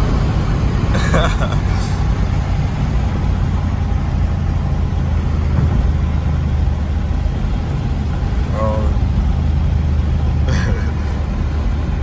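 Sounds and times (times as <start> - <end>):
car engine rumbling in cabin: 0.0 - 12.0
road and wind noise: 0.0 - 12.0.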